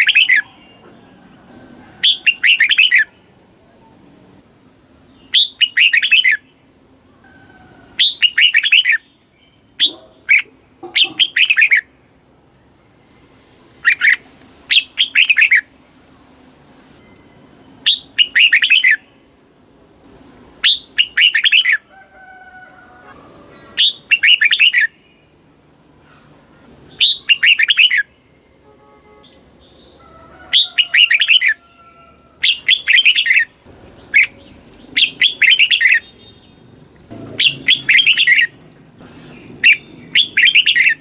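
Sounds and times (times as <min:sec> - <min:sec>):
bird singing warbled phrases: 0:00.0 - 0:00.9, 0:02.0 - 0:04.0, 0:05.0 - 0:07.2, 0:07.9 - 0:12.0, 0:13.8 - 0:15.7, 0:17.1 - 0:19.4, 0:20.5 - 0:22.0, 0:23.5 - 0:31.6, 0:32.3 - 0:41.0.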